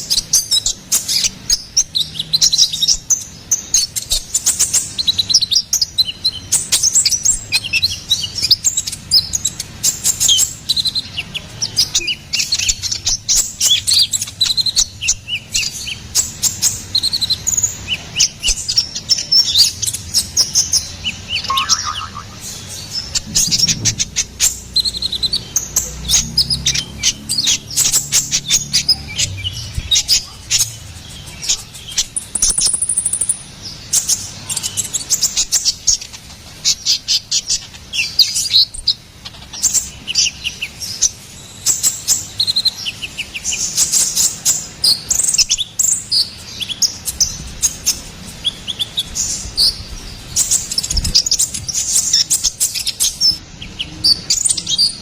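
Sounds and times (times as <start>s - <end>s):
bird singing high chirps: 0.0s - 35.7s.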